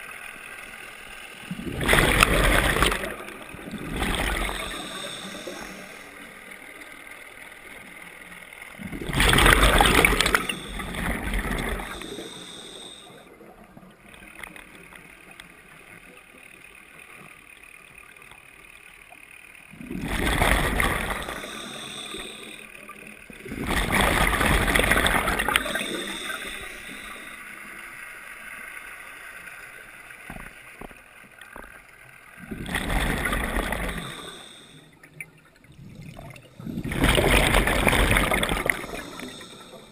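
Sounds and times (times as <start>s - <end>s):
steady regulator hiss: 0.0s - 8.8s, 9.8s - 13.7s, 20.6s - 23.4s, 24.6s - 30.2s, 33.2s - 39.9s
underwater exhaled bubbles gurgling: 1.5s - 6.5s, 8.8s - 14.8s, 19.7s - 27.6s, 32.4s - 39.9s.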